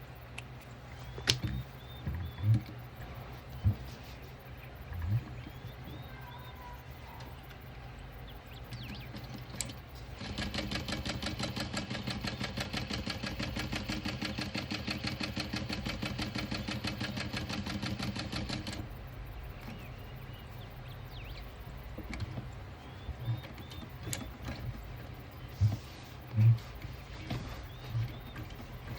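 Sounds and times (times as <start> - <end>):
bird chirps: 0.0 - 28.9
sewing machine stitching: 10.2 - 18.8.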